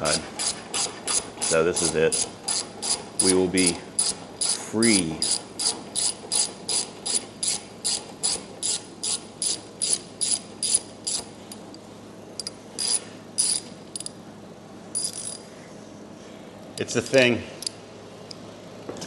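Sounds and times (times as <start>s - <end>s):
ratchet wrench clicking: 5.2s - 11.3s, 12.4s - 14.1s, 15.0s - 15.4s.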